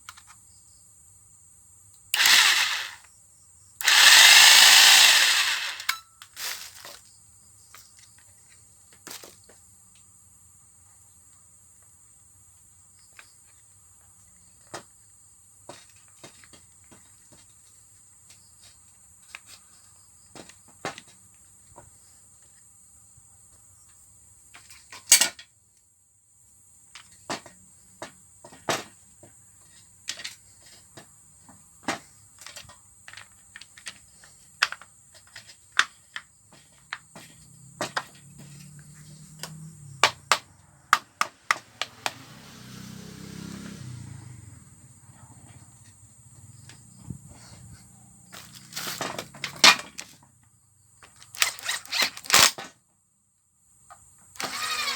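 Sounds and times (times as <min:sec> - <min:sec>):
hand tools clicking and clinking: 0:02.2 - 0:03.0, 0:03.8 - 0:07.0.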